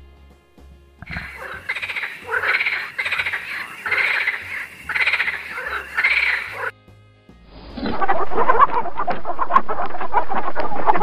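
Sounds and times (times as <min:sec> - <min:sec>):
rapidly pulsed animal calls: 0:01.0 - 0:06.7.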